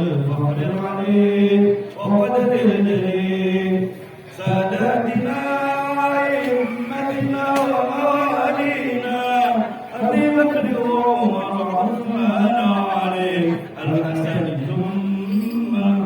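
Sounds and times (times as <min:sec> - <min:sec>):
voices chanting: 0:04.4 - 0:15.2.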